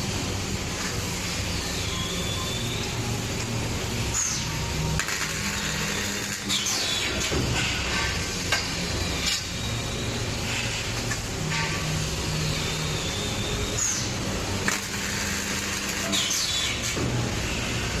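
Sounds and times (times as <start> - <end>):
welding machine electrical hum: 0.0 - 18.0
sharp electrical cracks: 3.4 - 9.6, 13.8 - 17.0.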